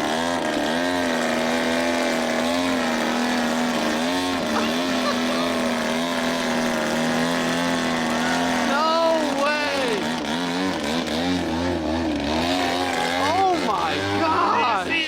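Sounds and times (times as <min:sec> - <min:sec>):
model airplane engine droning: 0:00.0 - 0:15.0.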